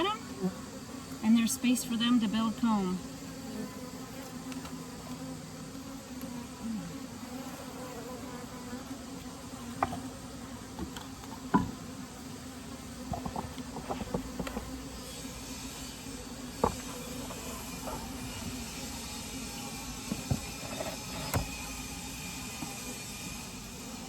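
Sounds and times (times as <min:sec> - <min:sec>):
honeybees humming: 0:00.0 - 0:24.0
hive knocks and clicks: 0:13.1 - 0:14.8.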